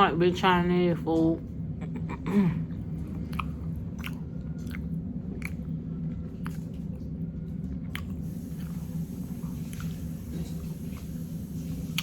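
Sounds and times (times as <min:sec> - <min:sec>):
steady low hum: 0:00.0 - 0:12.0
chewing with wet mouth smacks: 0:02.7 - 0:12.0.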